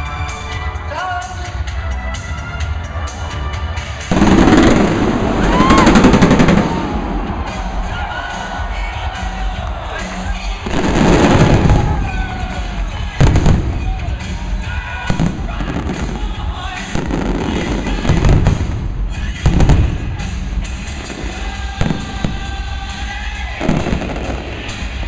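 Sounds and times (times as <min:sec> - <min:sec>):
music playing: 0:00.0 - 0:25.0
fireworks booming: 0:04.1 - 0:07.9, 0:10.6 - 0:14.4, 0:15.0 - 0:23.0, 0:23.6 - 0:25.0.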